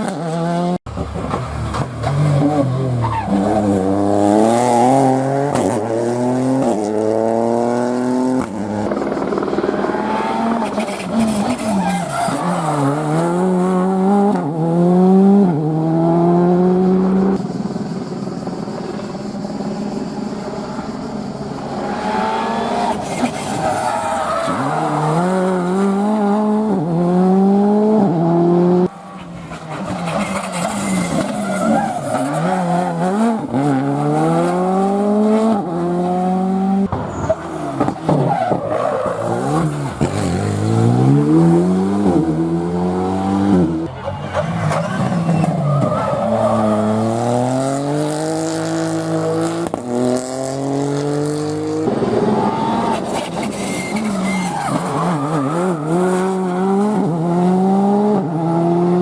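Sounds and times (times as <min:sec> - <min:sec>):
rally car engines at full throttle: 0:00.0 - 0:59.0
tyre squeal: 0:10.2 - 0:13.0, 0:21.8 - 0:25.7, 0:28.9 - 0:33.0, 0:52.3 - 0:57.1.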